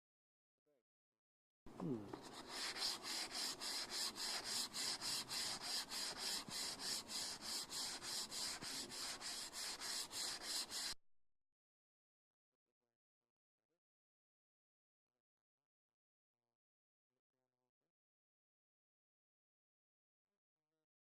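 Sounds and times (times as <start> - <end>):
sandpaper rubbing back and forth: 1.8 - 11.0.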